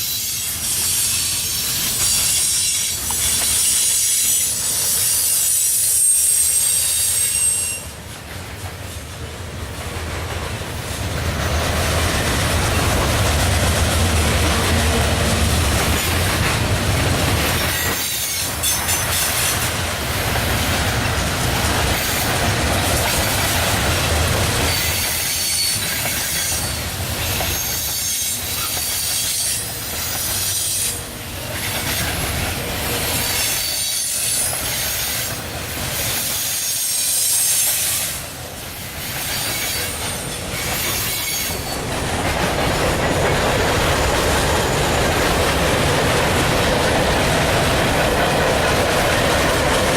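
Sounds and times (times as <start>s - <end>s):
high wheel squeal: 0.0s - 7.9s, 24.6s - 32.2s, 32.8s - 35.4s, 36.0s - 38.2s, 38.8s - 41.9s
steel wheels clattering on rail: 0.0s - 49.9s.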